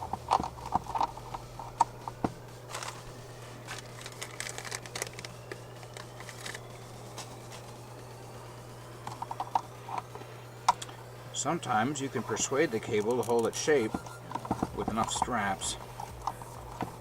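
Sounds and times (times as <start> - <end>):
plastic parts clicking and rustling: 0.0 - 3.0, 3.6 - 7.7, 9.0 - 11.0, 12.8 - 17.0
steady low hum: 0.0 - 17.0.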